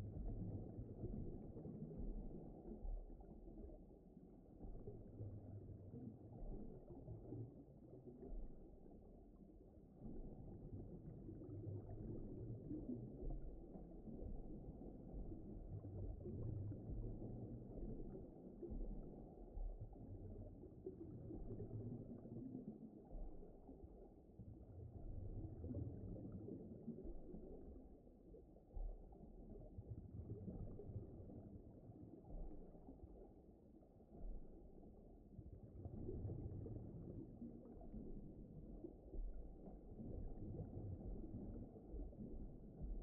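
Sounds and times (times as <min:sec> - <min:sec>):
muffled underwater rumbling: 0:00.0 - 0:43.0.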